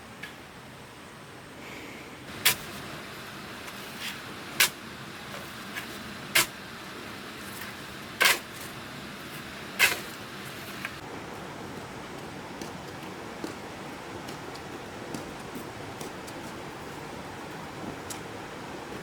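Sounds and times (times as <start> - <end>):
steady low hiss: 0.0 - 19.0
hand tool scraping cement mix: 2.3 - 11.0.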